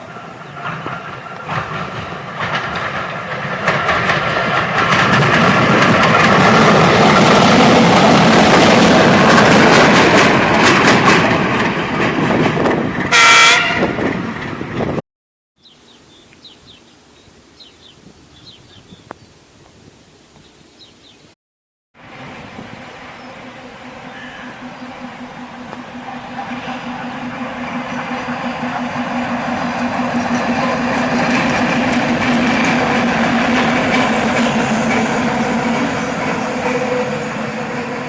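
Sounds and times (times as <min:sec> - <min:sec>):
wheels clattering over rail joints: 0:00.0 - 0:13.2, 0:23.2 - 0:37.2
diesel locomotive engine running: 0:00.0 - 0:15.0, 0:22.0 - 0:38.0
locomotive horn blast: 0:13.1 - 0:14.1, 0:36.5 - 0:38.0.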